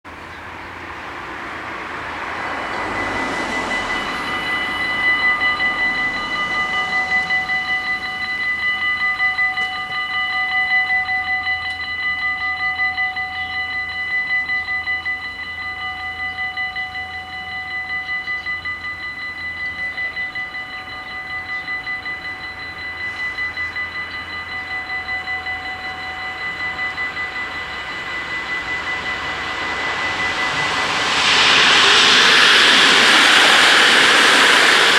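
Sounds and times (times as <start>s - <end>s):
rushing noise: 0.1s - 10.0s, 26.2s - 34.9s
level-crossing warning bells: 0.1s - 34.9s.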